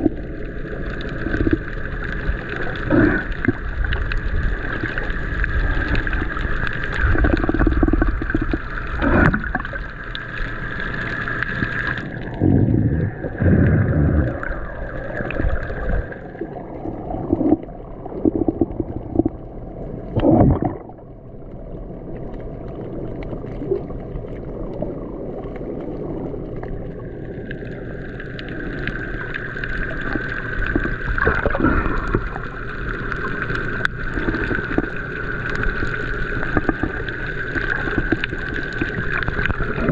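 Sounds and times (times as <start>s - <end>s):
water sloshing against hull: 0.0s - 39.9s
steady high hum: 4.4s - 23.0s.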